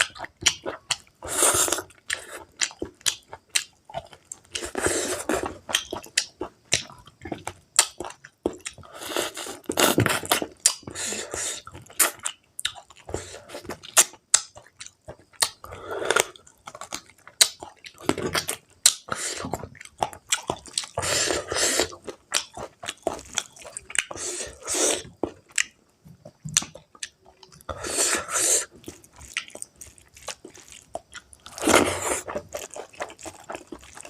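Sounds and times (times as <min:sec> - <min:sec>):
person chewing meat: 0:00.0 - 0:34.0.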